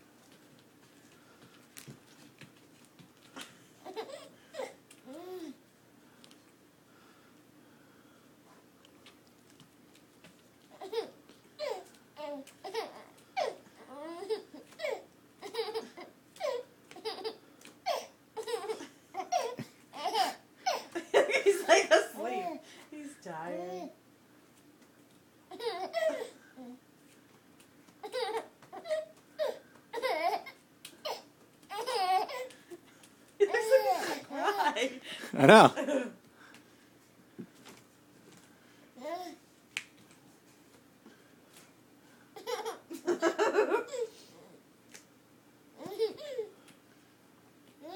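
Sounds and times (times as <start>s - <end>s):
baby laughing: 3.8s - 5.5s, 10.7s - 22.6s, 25.5s - 26.4s, 28.0s - 32.6s, 33.4s - 34.8s, 42.4s - 44.2s, 45.8s - 46.5s.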